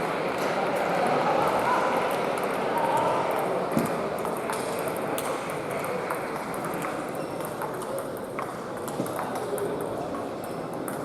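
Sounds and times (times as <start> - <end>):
murmur of large hall: 0.0 - 11.0
table tennis balls clicking: 4.2 - 11.0.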